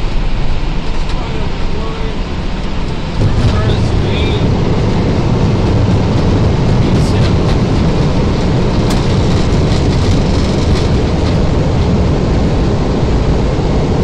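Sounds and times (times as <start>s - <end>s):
jet engines roaring: 0.0s - 14.0s
wheels rumbling on runway: 0.0s - 14.0s.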